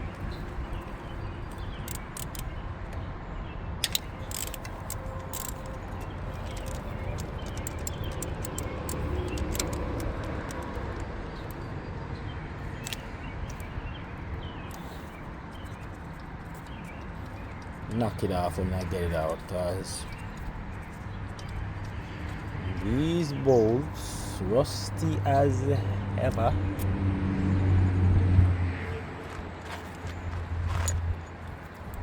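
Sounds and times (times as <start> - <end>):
steady background noise: 0.0 - 32.0
socket wrench clicking: 1.5 - 3.0, 3.8 - 11.7, 12.8 - 13.7.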